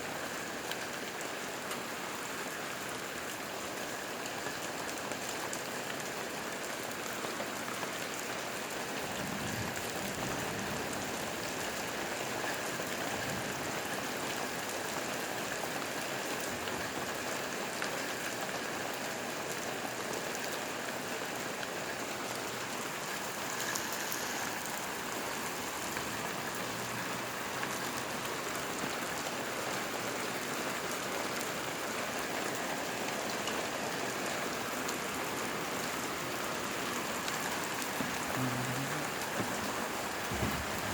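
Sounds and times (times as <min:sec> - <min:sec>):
rain pattering on surfaces: 0:00.0 - 0:40.9
low thunder rumble: 0:40.0 - 0:40.9.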